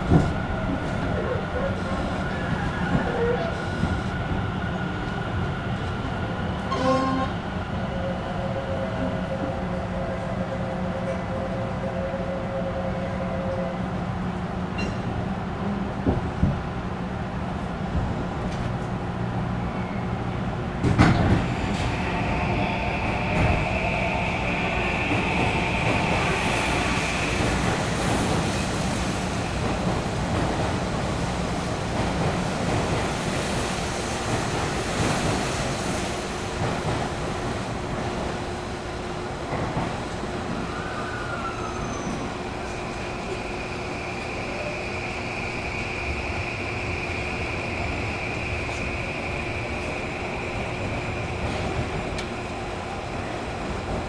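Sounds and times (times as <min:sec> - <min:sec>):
electric train rumbling: 0:00.0 - 0:54.0
train horn toot: 0:06.7 - 0:07.5
electric train running: 0:20.8 - 0:38.8.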